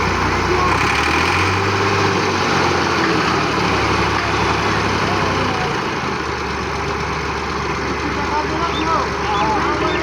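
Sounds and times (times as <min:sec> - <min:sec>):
tractor engine idling: 0:00.0 - 0:10.0
people's voices: 0:07.9 - 0:10.0.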